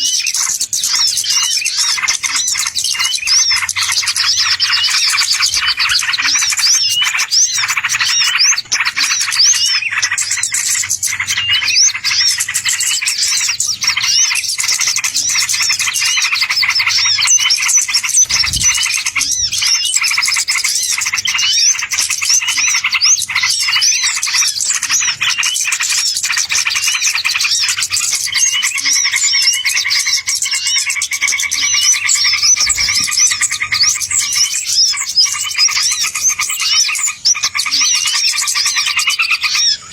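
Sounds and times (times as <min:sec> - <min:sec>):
songbirds chirping: 0:00.0 - 0:39.9
low steady trilling: 0:02.4 - 0:22.0.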